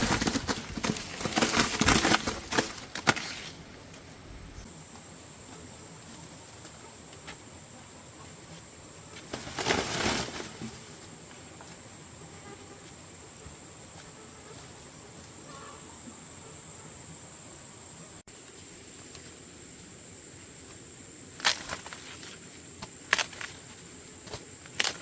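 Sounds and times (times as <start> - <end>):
rustling or flapping burst: 0.0 - 4.7, 9.3 - 11.0.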